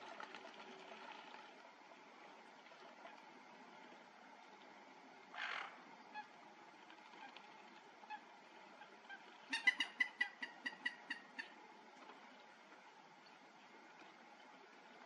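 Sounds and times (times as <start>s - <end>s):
bird calling: 5.4s - 6.4s, 8.1s - 11.6s.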